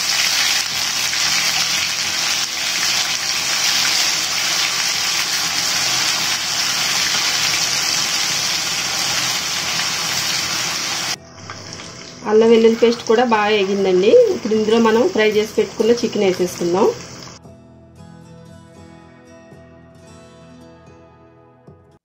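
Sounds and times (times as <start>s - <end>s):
paste sizzling in hot oil: 0.0s - 17.4s.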